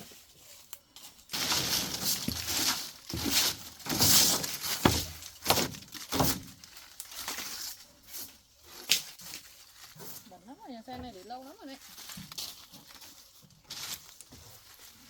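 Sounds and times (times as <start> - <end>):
dry leaves rustling and crackling: 0.0 - 15.0.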